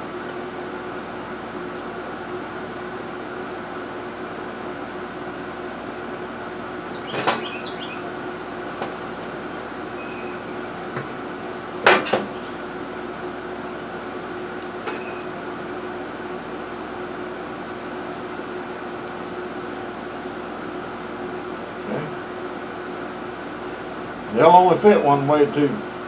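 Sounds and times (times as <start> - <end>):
steady hum: 0.0 - 24.4
metal parts clicking and knocking: 7.1 - 10.0, 11.9 - 12.6, 14.6 - 15.3.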